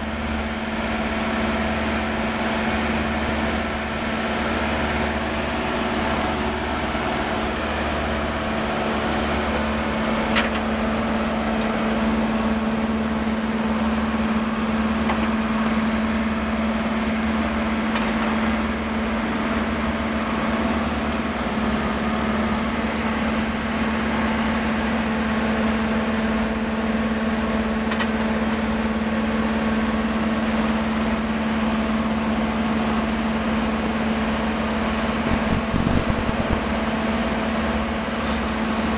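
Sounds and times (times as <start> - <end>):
drilling rig droning: 28.6 - 38.4.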